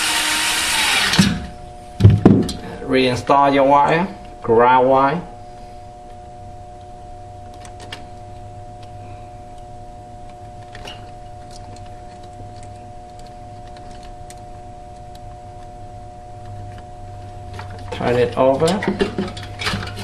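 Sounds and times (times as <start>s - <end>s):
steady background hum: 0.0s - 20.0s
faint clicks of small parts: 10.6s - 14.4s.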